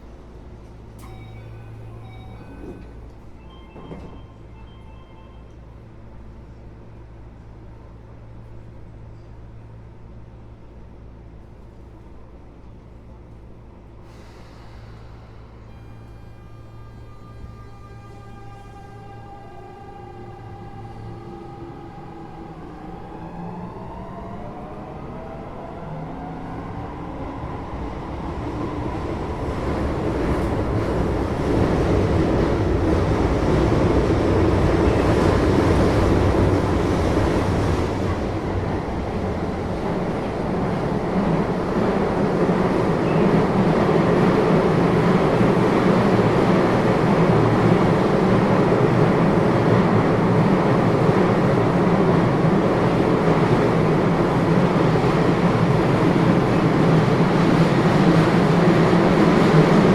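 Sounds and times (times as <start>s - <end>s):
train wheels rumbling on rail: 26.8s - 59.9s.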